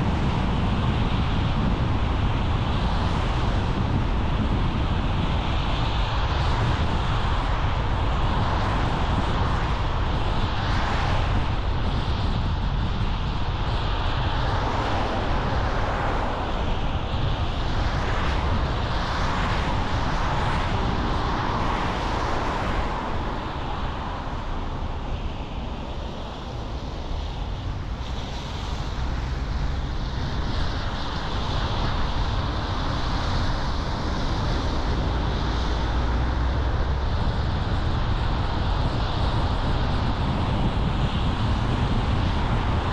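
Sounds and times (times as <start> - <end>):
car tyre road and wind noise: 0.0 - 42.9.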